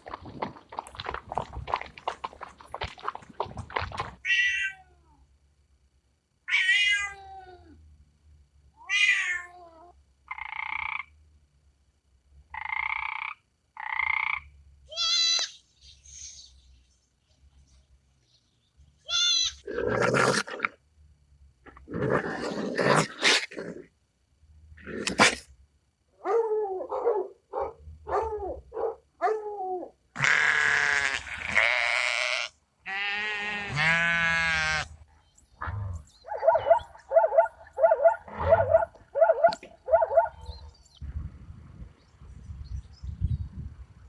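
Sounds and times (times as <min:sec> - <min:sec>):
long wavering bleat: 0:14.9 - 0:15.5, 0:30.2 - 0:35.0
animal yelps: 0:14.9 - 0:15.6, 0:19.1 - 0:19.7, 0:35.7 - 0:40.6
harsh noisy animal call: 0:30.2 - 0:34.9.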